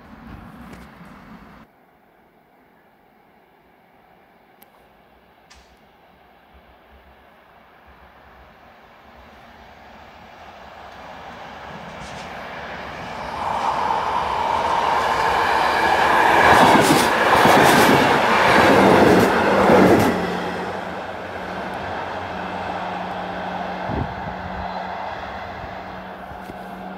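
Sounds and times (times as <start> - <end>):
passenger train passing: 6.5 - 26.9.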